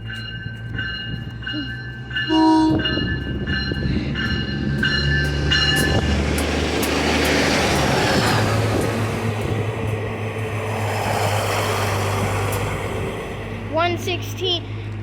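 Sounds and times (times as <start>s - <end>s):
warning bell dinging: 0.0s - 6.1s
train rushing past: 0.0s - 15.0s
train horn toot: 2.3s - 3.1s
diesel engine revving: 3.2s - 15.0s.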